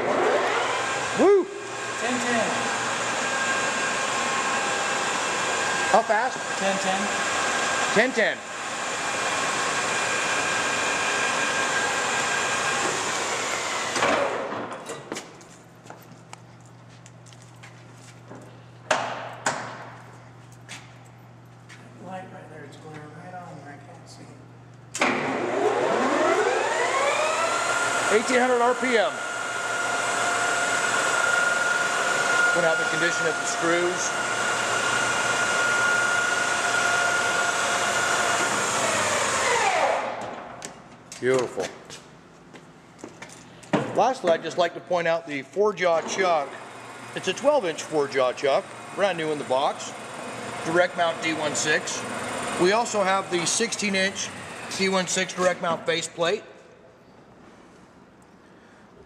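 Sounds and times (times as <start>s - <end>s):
lathe gear whine: 0.0s - 14.4s, 25.2s - 40.1s, 46.0s - 55.5s
low electrical hum: 14.0s - 29.4s.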